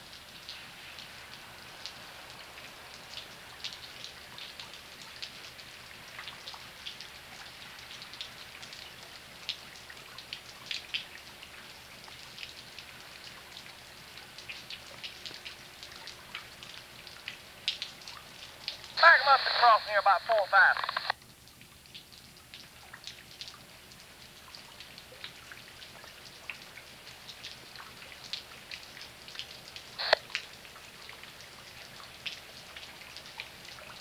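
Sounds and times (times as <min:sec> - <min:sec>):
light rain hiss: 0:00.0 - 0:34.0
raindrops ticking: 0:00.0 - 0:34.0.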